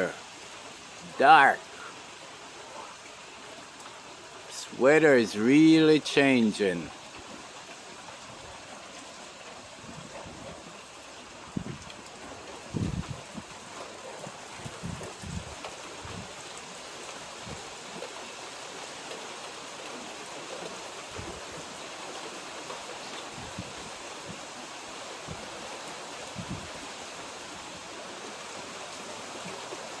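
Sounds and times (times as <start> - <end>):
heavy rain falling: 0.0 - 30.0
wind: 0.0 - 30.0.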